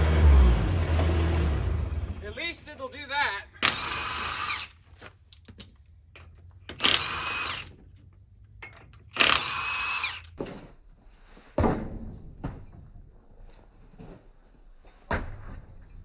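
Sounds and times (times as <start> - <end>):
clunks: 0.0 - 10.6
power wrench whine: 3.6 - 4.9, 6.7 - 7.8, 9.1 - 10.4.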